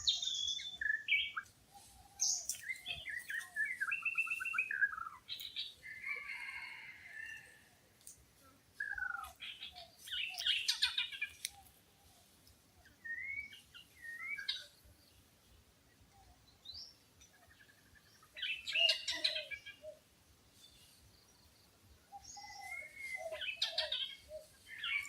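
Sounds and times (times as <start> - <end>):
birds chattering calls: 8.8 - 11.7, 16.8 - 20.0, 22.2 - 25.0.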